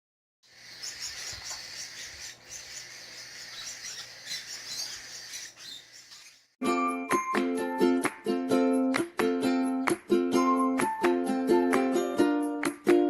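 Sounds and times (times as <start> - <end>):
baby parrots chirping: 0.5 - 6.6
ukulele music: 6.6 - 13.0.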